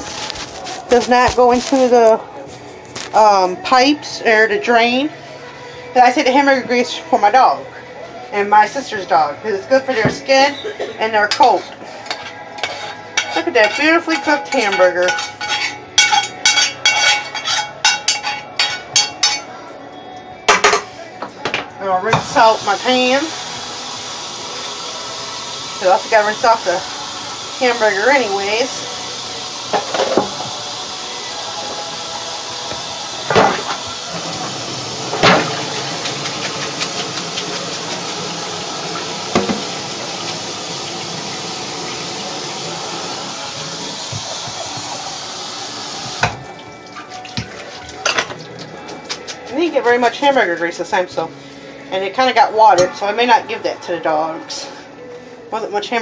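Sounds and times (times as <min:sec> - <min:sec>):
metal utensil clinking in skillet: 0:12.1 - 0:19.5
cookware knocking against sink: 0:20.5 - 0:22.3, 0:39.3 - 0:39.7
tap running into sink: 0:32.7 - 0:42.6, 0:43.5 - 0:46.5.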